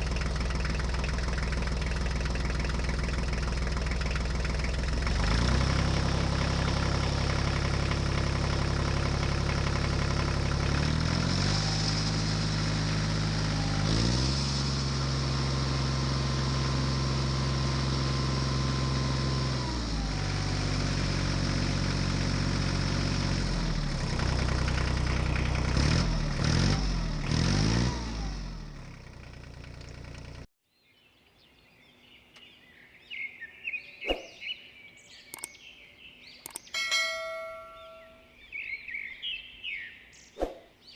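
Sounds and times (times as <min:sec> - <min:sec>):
engine running: 0:00.0 - 0:30.5, 0:36.4 - 0:39.0
birds chirping: 0:03.9 - 0:05.2, 0:25.1 - 0:25.7, 0:30.7 - 0:40.9
sharp clicks: 0:35.3 - 0:35.6, 0:36.4 - 0:36.8
brief ringing tone: 0:36.8 - 0:38.4.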